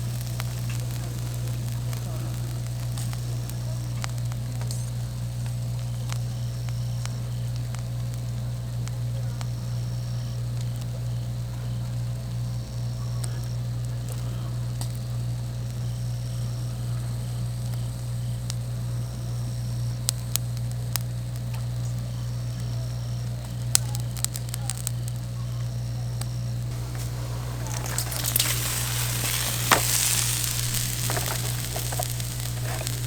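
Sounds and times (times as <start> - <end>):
crackling clicks: 0.0 - 11.3, 16.9 - 33.0
steady low hum: 25.9 - 33.0.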